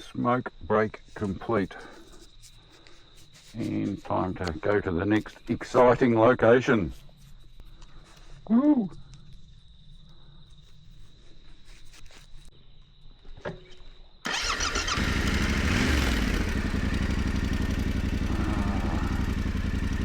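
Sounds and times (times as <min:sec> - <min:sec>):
motorcycle engine starting and idling: 0:14.3 - 0:20.0.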